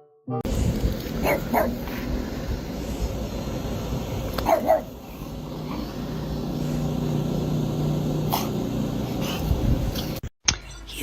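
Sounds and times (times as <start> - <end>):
low steady hum: 0.5 - 10.2
dog barking: 1.2 - 1.9, 4.4 - 5.0.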